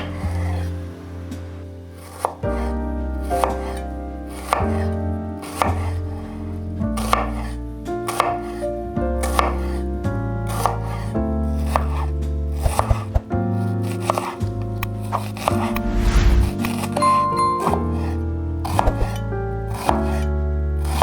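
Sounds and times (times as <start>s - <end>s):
knife chopping on cutting board: 3.4s - 3.8s, 4.4s - 4.8s, 7.0s - 7.5s, 8.1s - 8.6s, 9.2s - 9.8s, 10.5s - 11.0s, 11.6s - 13.2s, 13.8s - 14.4s
background music with chords: 15.4s - 19.8s.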